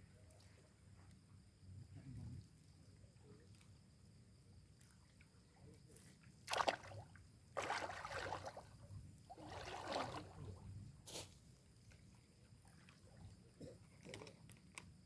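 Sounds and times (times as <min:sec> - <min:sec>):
water sloshing and splashing: 0:06.5 - 0:10.9.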